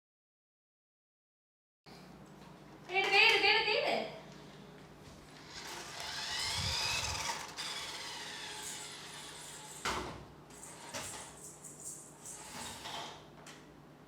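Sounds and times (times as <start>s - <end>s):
toy car motor whirring: 5.4s - 13.2s.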